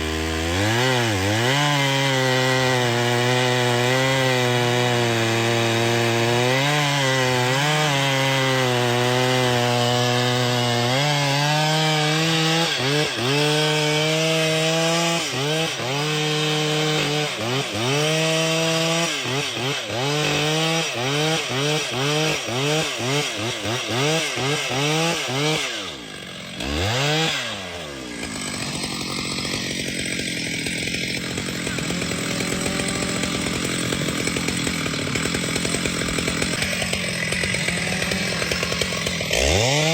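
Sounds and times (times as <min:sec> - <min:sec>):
chainsaw cutting wood: 0:00.0 - 0:39.9
steady rasping noise: 0:28.1 - 0:39.9.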